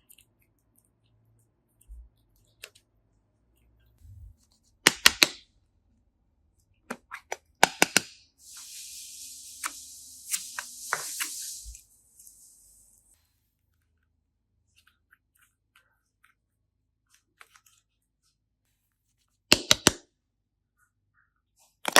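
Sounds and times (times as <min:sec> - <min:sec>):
steady hiss: 0:08.4 - 0:13.3.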